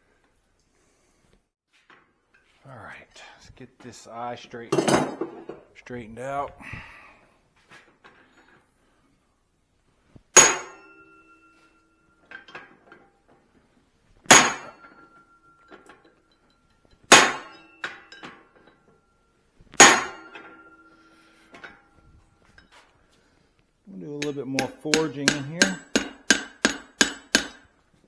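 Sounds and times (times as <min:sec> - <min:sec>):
hammer striking steel on anvil: 0:10.4 - 0:12.5, 0:14.3 - 0:18.9, 0:19.8 - 0:21.9, 0:24.1 - 0:27.8
light hammer taps: 0:24.2 - 0:27.6.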